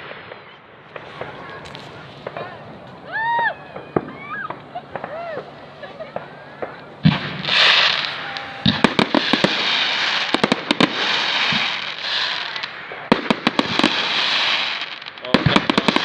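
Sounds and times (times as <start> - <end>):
crackling hiss: 0.0 - 16.0
fireworks bursting bangs: 0.0 - 16.0.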